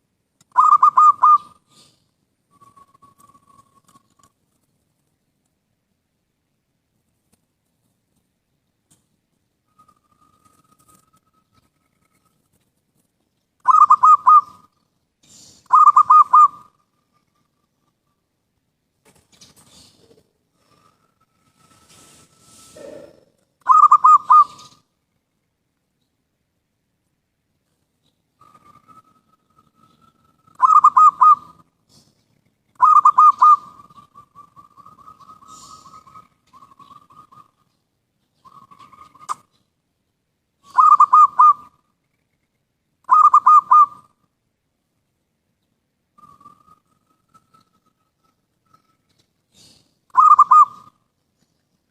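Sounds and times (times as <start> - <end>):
dove cooing: 0.5 - 2.0, 13.6 - 14.8, 15.7 - 17.3, 22.5 - 24.8, 28.4 - 32.1, 32.8 - 37.8, 40.6 - 41.8, 43.1 - 44.1, 49.5 - 51.0.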